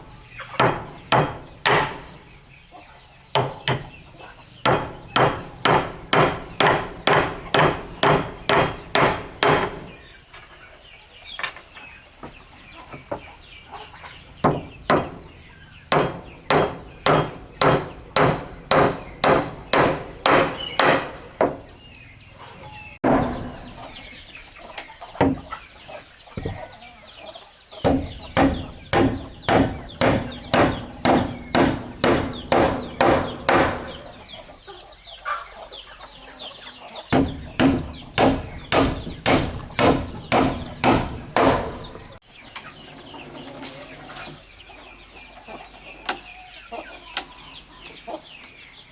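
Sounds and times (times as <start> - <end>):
hammer blows on wood: 15.9 - 21.7, 27.9 - 34.2, 37.2 - 42.2.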